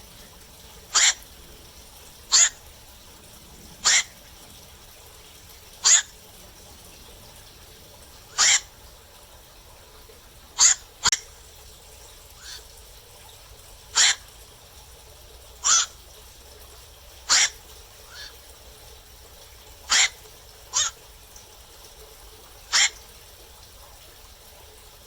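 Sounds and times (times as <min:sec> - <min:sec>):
heron harsh calls: 0:00.9 - 0:01.3, 0:02.2 - 0:02.7, 0:03.8 - 0:04.2, 0:05.8 - 0:06.2, 0:08.3 - 0:08.7, 0:10.6 - 0:11.3, 0:12.4 - 0:12.6, 0:14.0 - 0:14.3, 0:15.6 - 0:16.0, 0:17.3 - 0:18.4, 0:19.9 - 0:21.0, 0:22.7 - 0:23.0.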